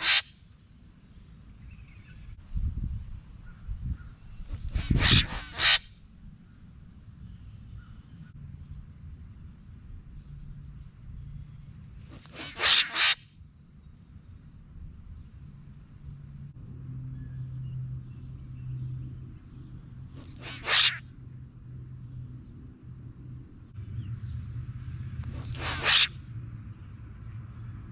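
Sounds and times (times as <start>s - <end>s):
bird harsh call: 0.0s - 0.4s, 4.6s - 5.9s, 12.3s - 13.2s, 20.2s - 21.1s, 25.3s - 26.2s.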